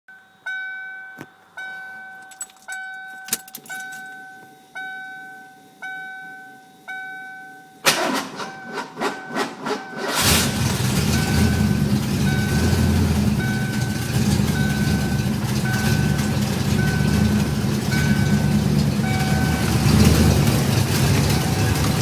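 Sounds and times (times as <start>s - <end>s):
car warning chime dinging: 0.1s - 10.3s, 10.9s - 22.0s
keys jingling: 1.2s - 4.5s
engine starter cranking: 2.2s - 4.1s, 7.8s - 22.0s
car engine idling: 7.8s - 22.0s.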